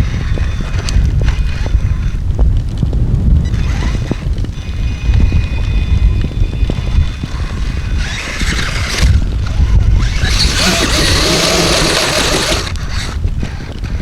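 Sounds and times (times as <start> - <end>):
wind buffeting microphone: 0.0 - 14.0
toy car motor whining: 3.4 - 14.0.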